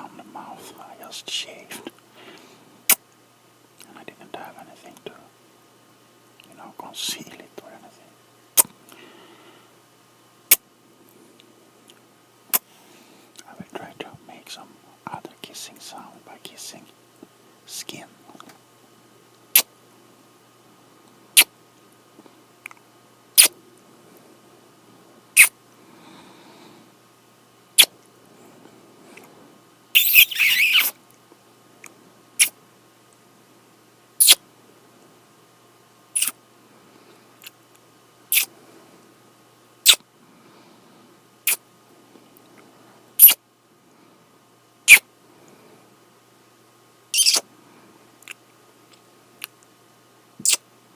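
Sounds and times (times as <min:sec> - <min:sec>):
kisses on skin: 0:19.5 - 0:19.7, 0:23.4 - 0:23.6, 0:25.4 - 0:25.6, 0:30.0 - 0:31.0, 0:34.2 - 0:34.4, 0:36.2 - 0:36.4, 0:38.3 - 0:38.5, 0:39.8 - 0:40.1, 0:41.4 - 0:41.6, 0:43.2 - 0:43.4, 0:44.9 - 0:45.1, 0:47.2 - 0:47.5, 0:50.4 - 0:50.6.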